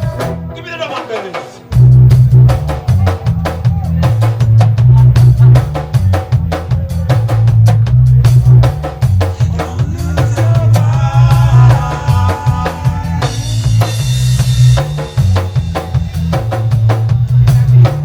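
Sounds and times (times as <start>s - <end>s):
drum kit snare and rimshots: 0.0s - 18.0s
deep heavy bass line: 1.7s - 18.0s.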